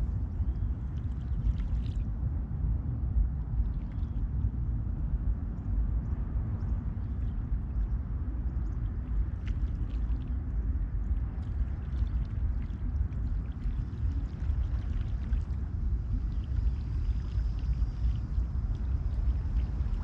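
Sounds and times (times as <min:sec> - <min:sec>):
steady low rumble: 0:00.0 - 0:20.0
small splashes and drips: 0:00.9 - 0:02.1, 0:08.6 - 0:20.0.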